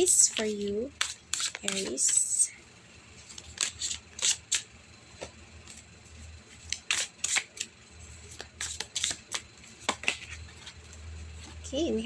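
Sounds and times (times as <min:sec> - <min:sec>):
cards being shuffled: 0:00.2 - 0:02.2, 0:03.3 - 0:04.7, 0:06.6 - 0:07.7, 0:08.3 - 0:10.8.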